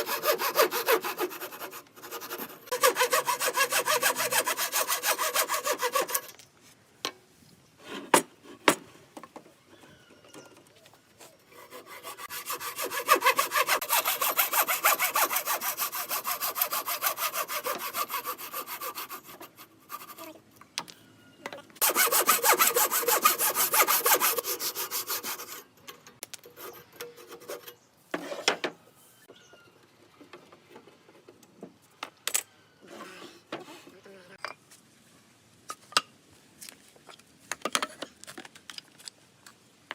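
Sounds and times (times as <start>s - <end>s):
hand saw cutting wood: 0.0s - 6.3s, 11.5s - 20.4s, 21.8s - 28.6s
short scrape: 32.8s - 33.9s.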